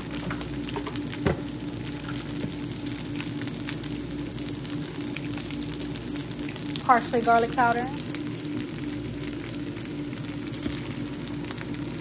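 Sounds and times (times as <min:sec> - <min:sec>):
low steady hum: 0:00.0 - 0:12.0
rice sizzling in a skillet: 0:00.0 - 0:12.0.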